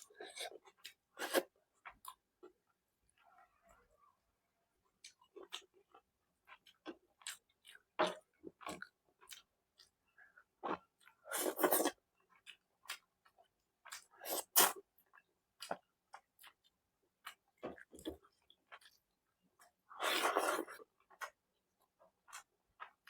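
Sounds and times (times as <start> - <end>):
chewing and wet mouth sounds: 4.8 - 23.0.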